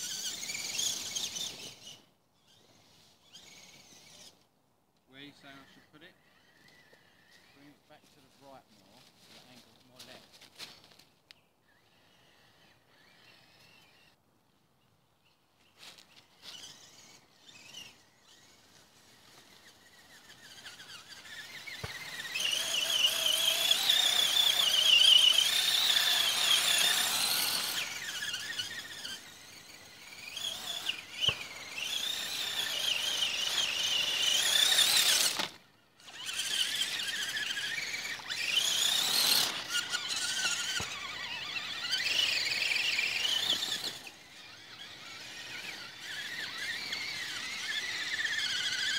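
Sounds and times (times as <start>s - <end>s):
toy truck motor whining: 0.0s - 4.5s, 5.2s - 8.2s, 11.3s - 14.2s, 15.9s - 48.9s.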